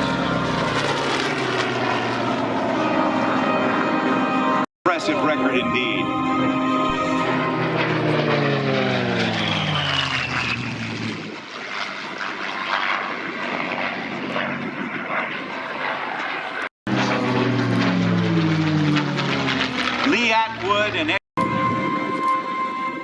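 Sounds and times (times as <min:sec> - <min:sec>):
propeller plane flying past: 0:00.0 - 0:23.0.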